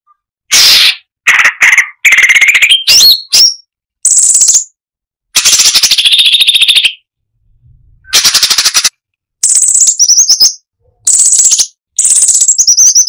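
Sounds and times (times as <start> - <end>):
bulbul rattling trills: 8.1 - 13.0.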